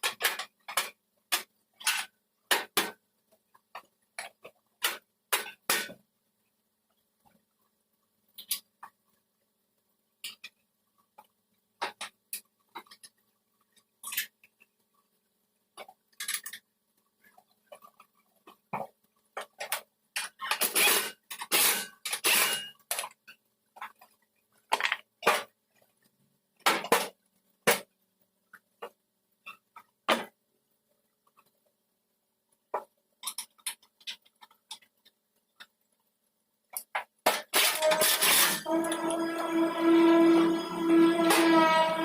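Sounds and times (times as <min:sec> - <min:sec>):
scraping strokes: 0:37.6 - 0:42.0.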